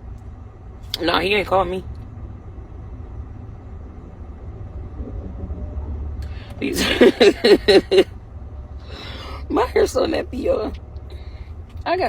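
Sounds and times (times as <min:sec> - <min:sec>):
low steady rumble: 0:00.0 - 0:12.0
woman talking loudly: 0:06.6 - 0:07.4, 0:09.4 - 0:10.7.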